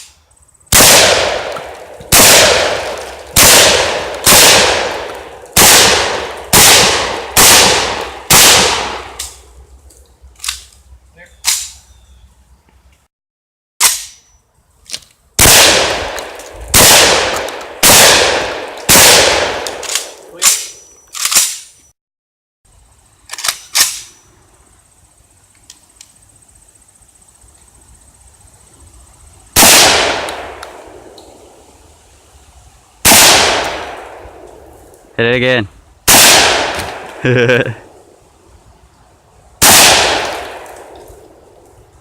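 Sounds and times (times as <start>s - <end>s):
shotgun shots: 0.7s - 9.4s, 15.4s - 21.6s, 29.6s - 31.0s, 33.1s - 34.4s, 36.1s - 37.2s, 39.6s - 40.9s
quieter gunshot cracks: 0.8s - 9.4s, 36.1s - 37.2s, 39.6s - 41.2s.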